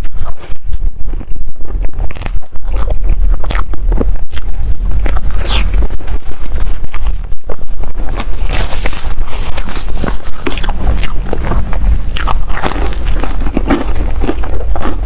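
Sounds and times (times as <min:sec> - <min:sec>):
steady low rumble: 0:00.0 - 0:15.0
close chewing with wet smacks: 0:09.5 - 0:15.0.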